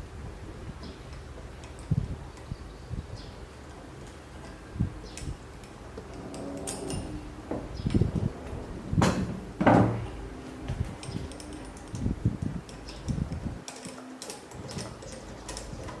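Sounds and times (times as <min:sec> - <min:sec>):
metal machine parts clunking: 0:04.1 - 0:10.1.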